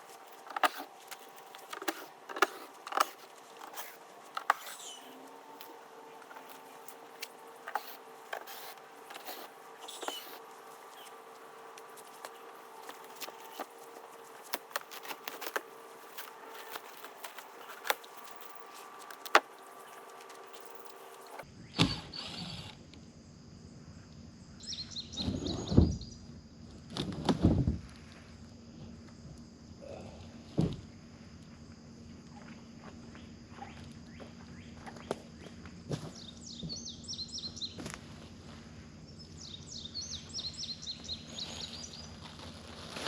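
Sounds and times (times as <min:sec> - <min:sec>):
wooden crate being pried apart: 0:00.0 - 0:21.4.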